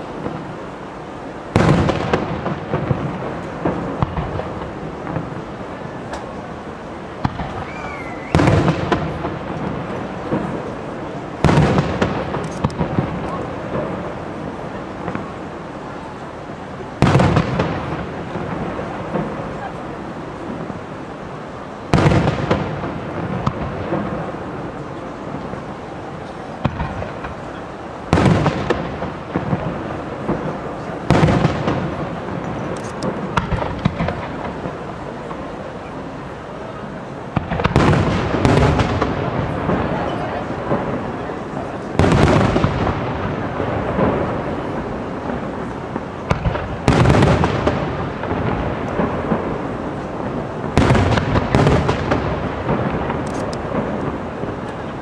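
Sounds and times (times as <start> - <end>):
fireworks cracks and pops: 0.0 - 21.2, 21.8 - 55.0
fireworks booming: 0.0 - 55.0
firework whistle: 6.9 - 9.7.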